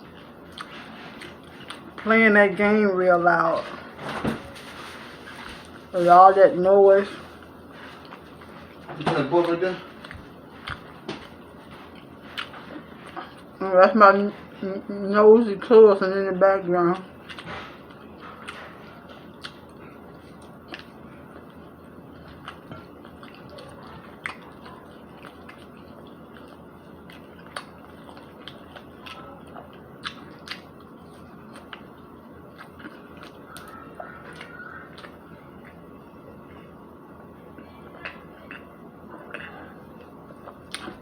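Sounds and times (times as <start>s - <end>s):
person chewing food: 0.0s - 2.1s, 7.1s - 13.6s, 17.0s - 41.0s.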